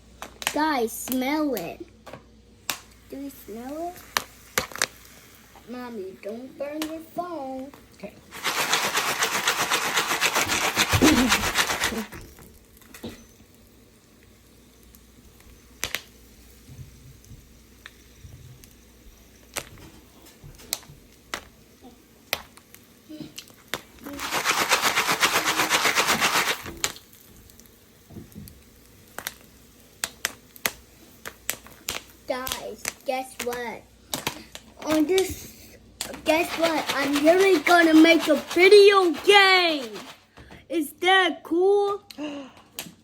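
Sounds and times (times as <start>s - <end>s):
popcorn popping in a pan: 0.1s - 40.7s
rattling in a pan: 36.0s - 40.3s.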